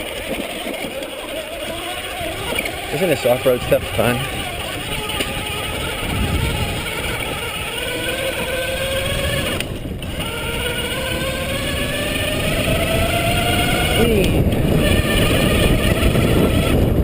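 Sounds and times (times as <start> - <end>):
electric bike motor whining: 0.0 - 17.0
wind and tyres on dirt: 0.0 - 17.0.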